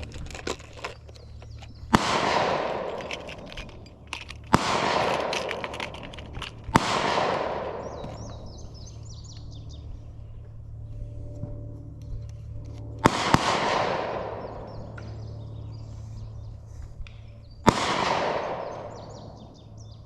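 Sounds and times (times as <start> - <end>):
bird chirping: 0.0 - 2.0, 7.6 - 12.6, 14.2 - 17.7, 18.4 - 20.0
gunshots echoing: 1.9 - 8.6, 13.0 - 15.4, 17.6 - 19.6.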